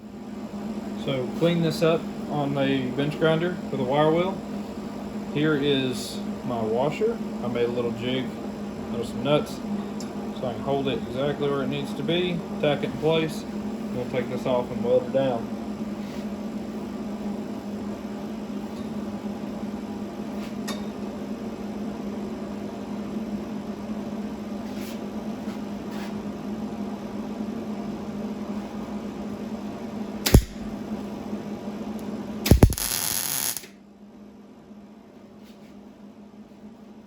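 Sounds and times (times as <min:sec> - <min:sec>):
shop hum: 0:00.0 - 0:37.0
sharp metallic click: 0:30.2 - 0:30.6
welding arc crackle: 0:30.3 - 0:30.7, 0:32.4 - 0:33.8.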